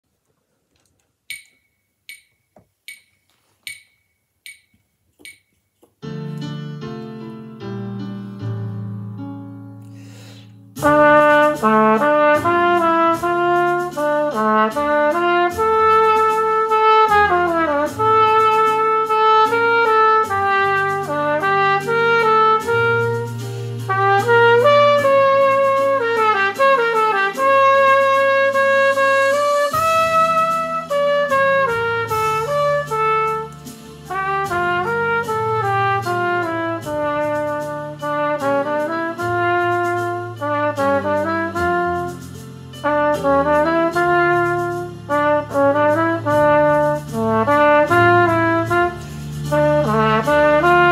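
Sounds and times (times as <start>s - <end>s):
trumpet playing a melody: 10.8s - 50.9s.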